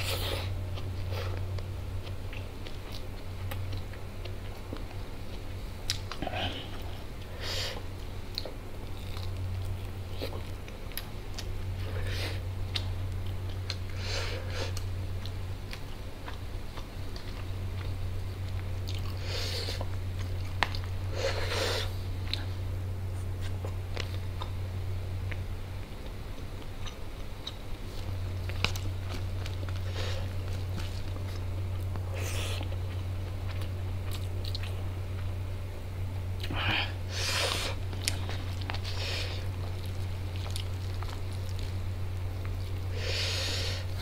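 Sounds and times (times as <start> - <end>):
steady low hum: 0.0 - 44.0
person chewing and biting food: 7.8 - 22.5, 25.2 - 35.4, 36.4 - 42.9.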